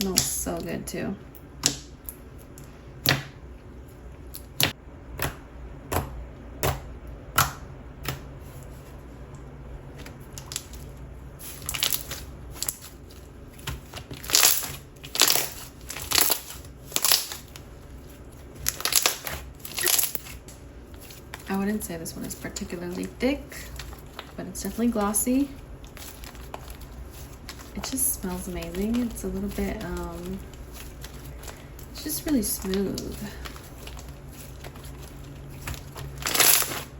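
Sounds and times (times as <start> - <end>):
slime crackling squishes: 9.9 - 36.9.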